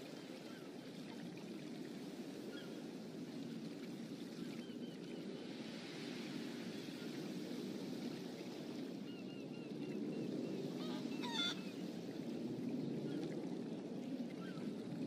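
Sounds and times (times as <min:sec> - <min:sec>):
bird calls: 0:09.1 - 0:11.8
bird squawk: 0:10.8 - 0:11.7.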